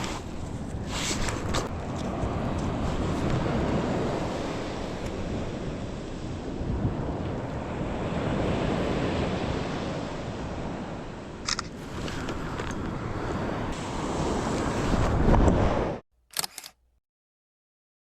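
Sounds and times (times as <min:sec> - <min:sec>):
ocean surf on beach: 0:00.0 - 0:16.0
wind buffeting microphone: 0:00.0 - 0:16.0
sharp click: 0:16.3 - 0:16.8.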